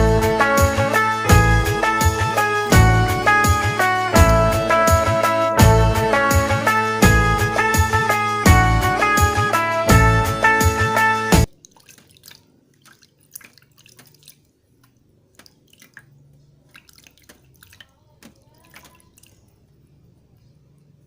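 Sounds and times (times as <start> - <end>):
water dripping into container: 11.5 - 19.9.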